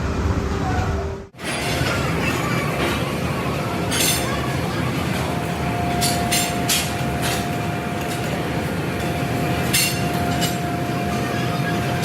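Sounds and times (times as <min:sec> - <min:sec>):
factory machinery hum: 0:00.0 - 0:12.0
metallic clinks of steel parts: 0:09.0 - 0:10.7.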